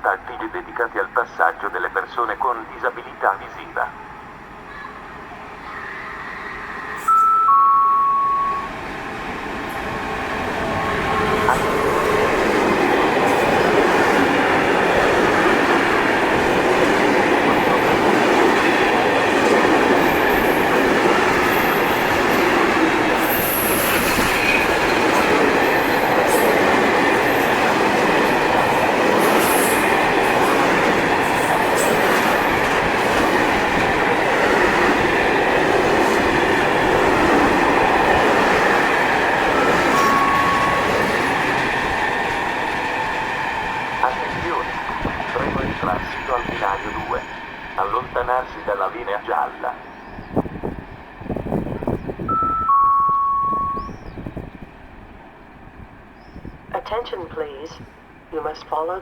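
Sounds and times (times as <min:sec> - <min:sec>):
train passing through: 0:00.0 - 0:59.0
two-note train horn: 0:07.0 - 0:08.8, 0:52.3 - 0:54.0.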